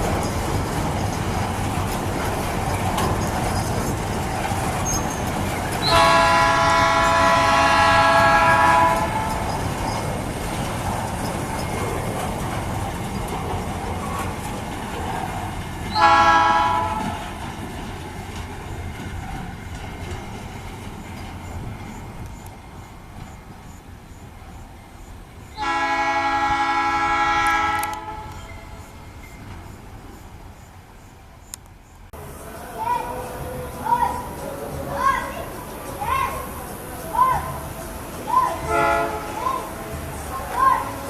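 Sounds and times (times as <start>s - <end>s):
freight train rumbling: 0.0s - 41.0s
locomotive air horn: 5.8s - 9.5s, 16.0s - 17.3s, 25.6s - 28.5s, 38.6s - 40.1s.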